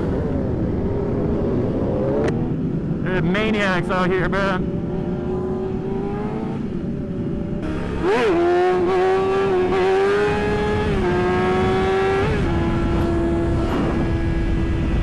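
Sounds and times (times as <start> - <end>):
motorcycle engine revving: 4.6 - 15.0.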